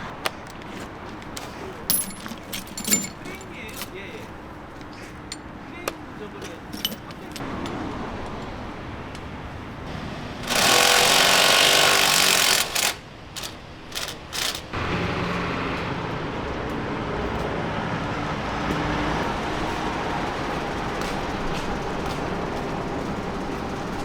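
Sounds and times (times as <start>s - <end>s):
pneumatic impact wrench bursts: 10.4s - 14.7s.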